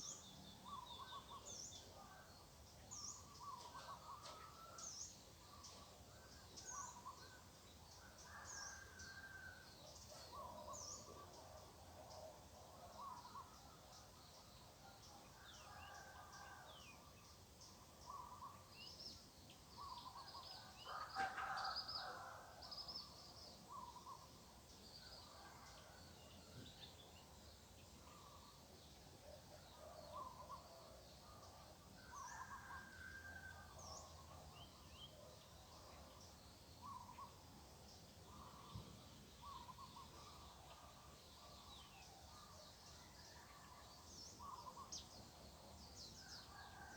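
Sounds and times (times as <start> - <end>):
low background hiss: 0.0 - 21.1, 21.9 - 46.9
birds calling faintly: 25.0 - 46.9.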